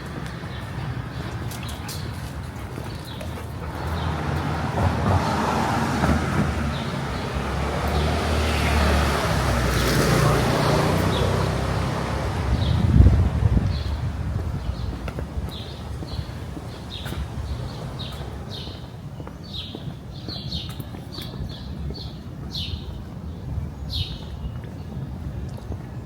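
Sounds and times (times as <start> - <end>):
vehicle driving past: 3.7 - 12.7.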